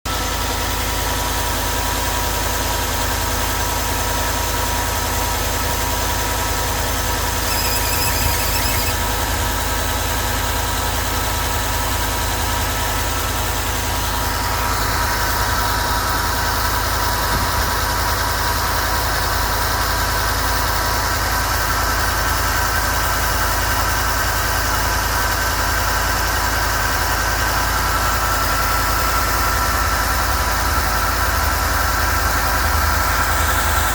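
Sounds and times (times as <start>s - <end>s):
high-pitched squeal: 7.2s - 9.8s.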